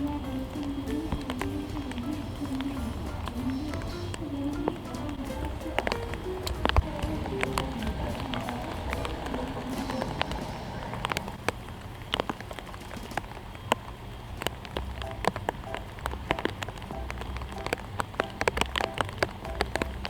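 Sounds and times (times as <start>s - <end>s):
low steady rumble: 0.0s - 11.8s
raindrops tapping on hard surface: 0.0s - 20.0s.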